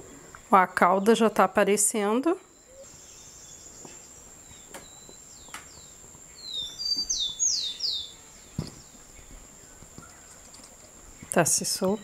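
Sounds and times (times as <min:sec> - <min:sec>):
faint background hiss: 0:00.0 - 0:12.0
bird chirping: 0:02.5 - 0:12.0.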